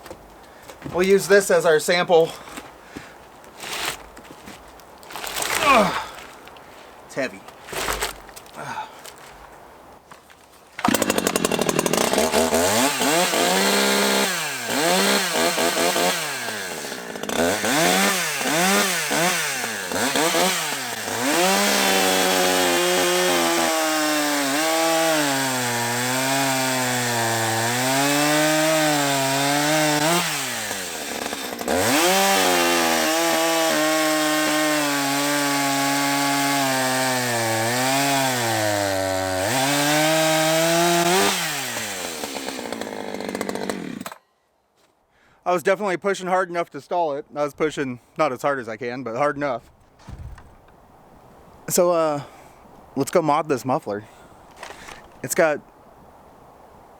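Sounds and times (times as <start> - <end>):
chainsaw cutting log: 3.5 - 4.2, 5.1 - 6.5, 7.6 - 8.4, 10.8 - 44.3, 54.5 - 55.4.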